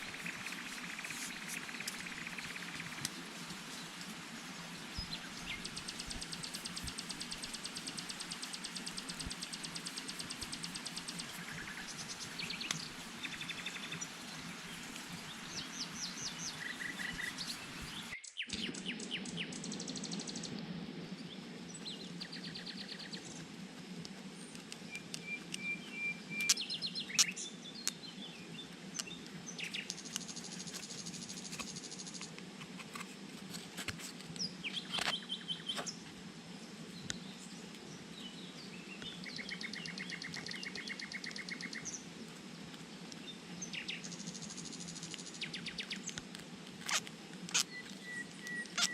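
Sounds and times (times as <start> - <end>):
birds chirping and trilling: 0.0 - 20.6, 24.5 - 32.3, 34.4 - 36.1, 37.0 - 42.1, 46.8 - 48.9
low background hum: 0.0 - 48.9.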